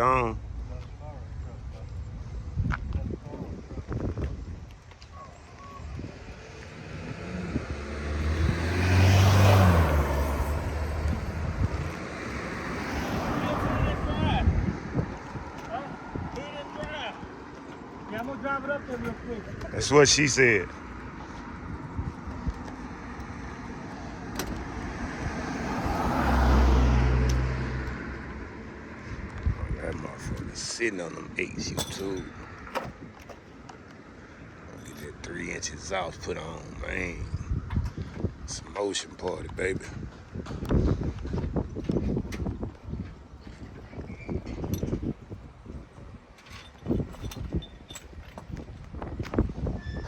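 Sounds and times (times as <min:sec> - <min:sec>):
car engine hum driving by: 0:05.8 - 0:29.4
vehicle passing close by: 0:05.8 - 0:30.7.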